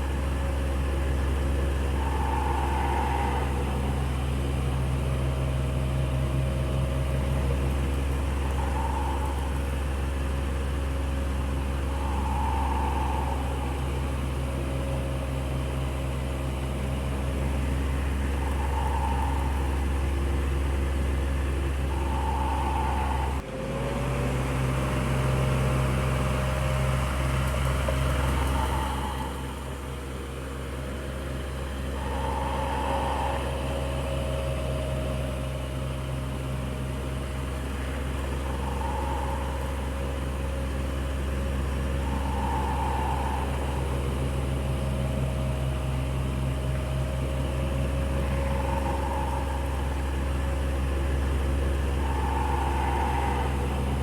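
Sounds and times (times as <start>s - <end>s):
electric fan humming: 0.0s - 23.4s.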